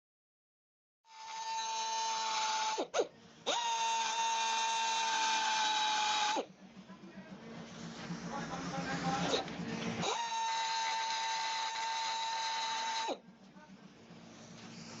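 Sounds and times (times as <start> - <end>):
power tool whining: 1.1 - 6.5, 9.2 - 13.2.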